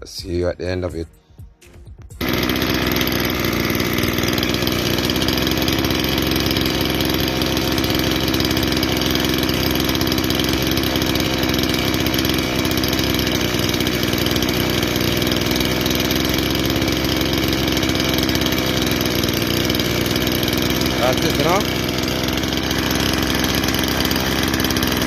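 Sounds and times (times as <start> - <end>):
brushcutter engine running: 2.2 - 25.0.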